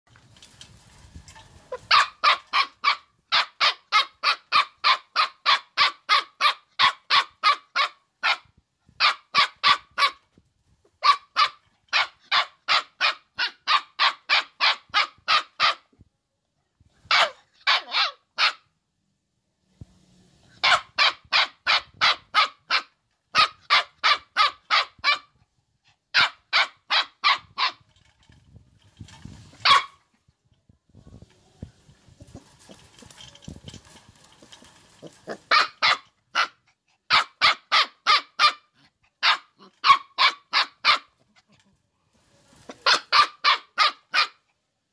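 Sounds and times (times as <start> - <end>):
dog barking rapidly: 1.8 - 10.2, 11.0 - 15.8, 17.1 - 18.6, 20.6 - 25.3, 26.2 - 27.8, 29.6 - 30.0, 35.3 - 41.1, 42.7 - 44.4.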